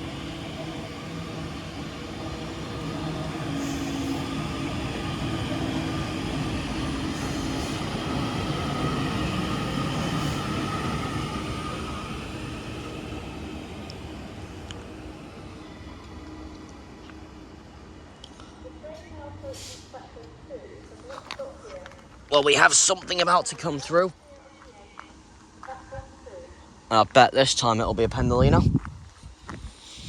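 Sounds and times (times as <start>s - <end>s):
electric train passing: 0.0s - 21.0s.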